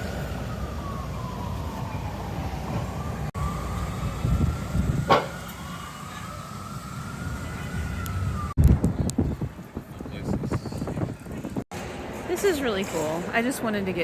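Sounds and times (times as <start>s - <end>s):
emergency vehicle siren wailing: 0.0s - 8.9s
city traffic rumble: 0.0s - 14.0s.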